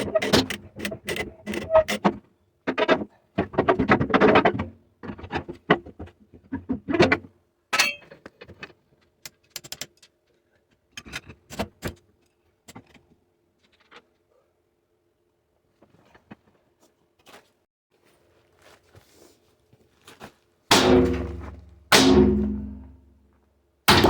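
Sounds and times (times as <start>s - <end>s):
metal clanking and rattling: 20.7s - 23.1s.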